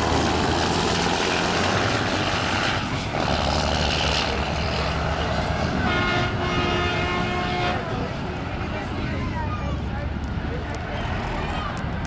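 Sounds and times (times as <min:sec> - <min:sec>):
diesel truck engines running: 0:00.0 - 0:12.0.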